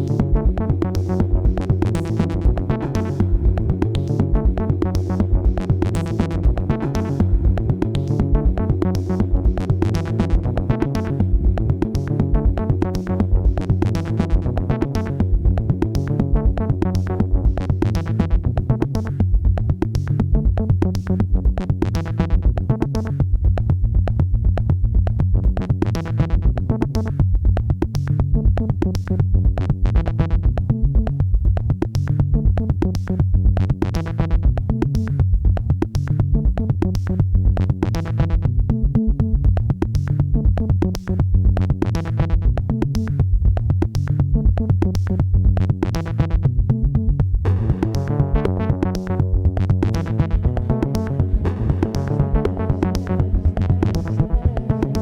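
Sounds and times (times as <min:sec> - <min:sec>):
synthesizer music: 0:00.0 - 0:19.2, 0:47.5 - 0:55.0
drum machine beat: 0:00.0 - 0:38.4, 0:47.0 - 0:55.0.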